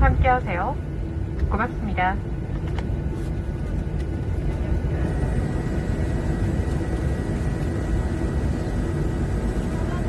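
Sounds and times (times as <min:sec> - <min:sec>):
jet engine and airflow rumble: 0:00.0 - 0:10.0
faint high whine: 0:04.3 - 0:10.0.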